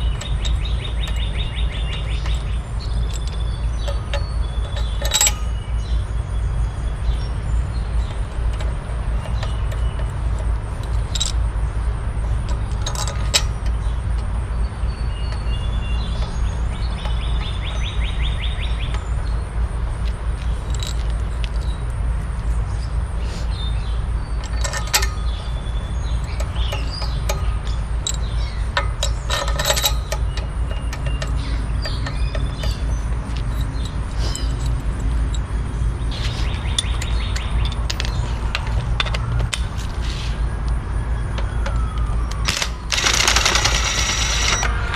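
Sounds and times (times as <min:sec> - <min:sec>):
tools clinking on metal: 0:00.0 - 0:06.2, 0:08.0 - 0:11.6, 0:12.3 - 0:14.3, 0:20.4 - 0:21.8, 0:24.3 - 0:39.7, 0:41.3 - 0:44.9
birds chirping: 0:00.0 - 0:44.9.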